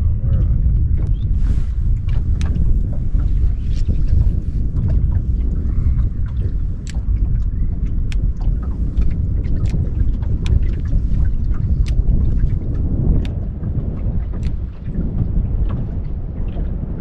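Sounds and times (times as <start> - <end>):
wind buffeting microphone: 0.0 - 17.0
sharp ticks and clicks: 8.1 - 8.3, 11.8 - 12.1, 13.2 - 13.4, 14.4 - 14.6.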